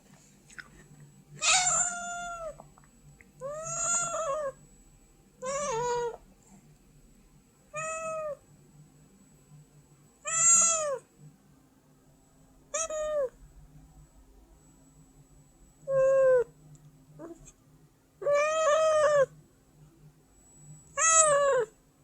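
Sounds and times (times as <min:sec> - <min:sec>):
cat meowing: 0:01.4 - 0:02.6, 0:03.4 - 0:04.6, 0:05.4 - 0:06.2, 0:10.3 - 0:11.0, 0:12.7 - 0:13.4, 0:15.9 - 0:16.5, 0:18.2 - 0:19.3, 0:21.0 - 0:21.7.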